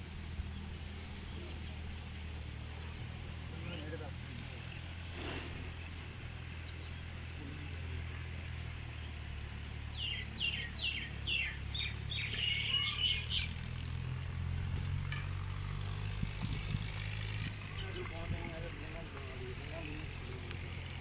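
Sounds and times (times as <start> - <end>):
low engine hum: 0.0 - 21.0
songbird calling: 9.7 - 14.0, 17.3 - 18.6.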